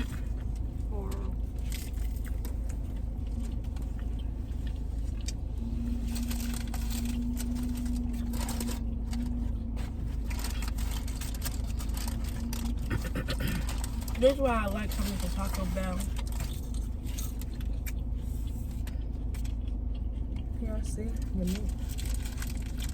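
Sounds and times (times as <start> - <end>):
steady low-pitched tone: 0.0 - 14.4
car air conditioning hum: 0.0 - 22.9.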